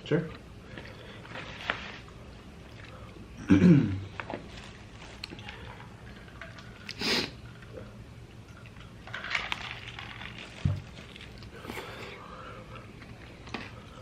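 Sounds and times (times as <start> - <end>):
chewing mouth noises: 4.1 - 12.0.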